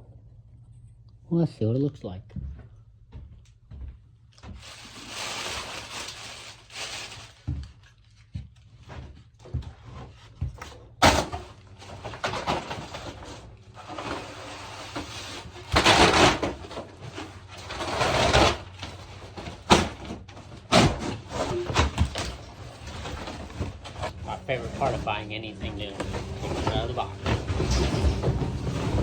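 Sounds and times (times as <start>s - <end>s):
packaging rustling and tearing: 4.5s - 8.2s.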